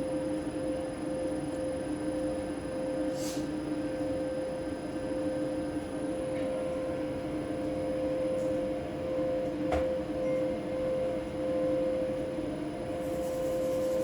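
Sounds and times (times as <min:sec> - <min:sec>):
faint high whine: 0:00.0 - 0:14.0.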